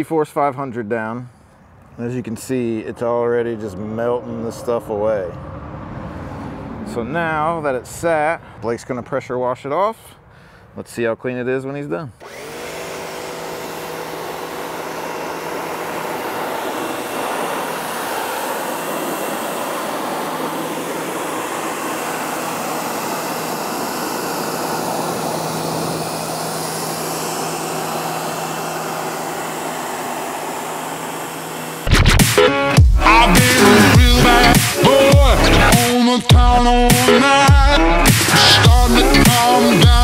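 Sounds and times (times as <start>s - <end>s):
pressure washer pump hum: 12.2s - 35.9s, 36.8s - 40.0s
water jet hissing: 13.0s - 31.9s.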